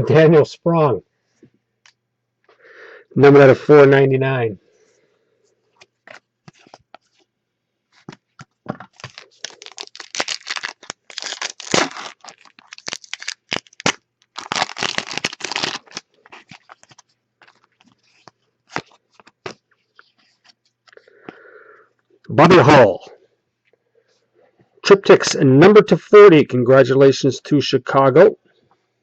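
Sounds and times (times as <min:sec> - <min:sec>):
cards clicking and rustling: 0:05.8 - 0:07.2, 0:08.0 - 0:21.0
wrapper tearing and crinkling: 0:08.8 - 0:19.6.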